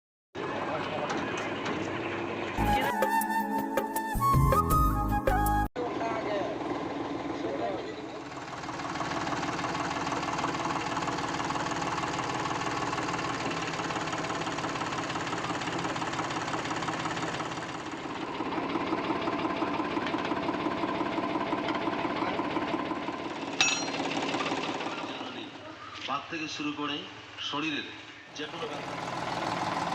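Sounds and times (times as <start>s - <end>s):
tractor engine chugging: 6.6s - 25.6s, 28.4s - 29.9s
thresher rattle: 8.5s - 22.0s, 22.7s - 25.3s.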